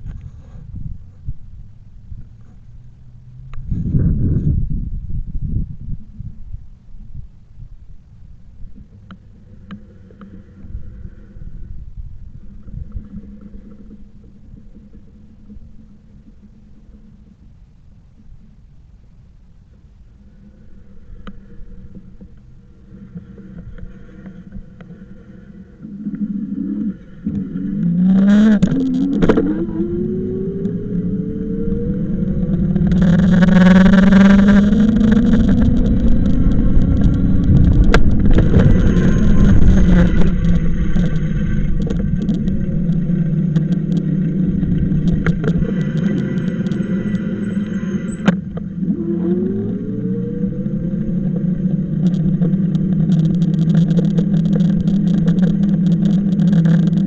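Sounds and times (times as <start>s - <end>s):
rushing wind and road noise: 0.0s - 9.8s, 27.2s - 57.0s
vehicle motor speeding up: 20.3s - 57.0s.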